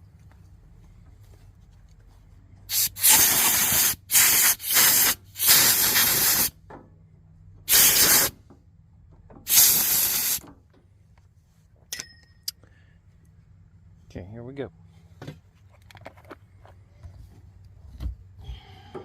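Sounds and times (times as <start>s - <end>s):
compressed air hissing from blow gun: 2.7s - 6.6s, 7.7s - 8.4s, 9.5s - 10.4s.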